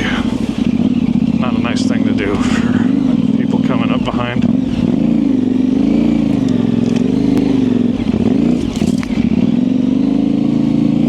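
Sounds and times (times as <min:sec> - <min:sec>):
motorcycle engine at low revs: 0:00.0 - 0:11.0
knocks and scrapes: 0:08.5 - 0:09.3.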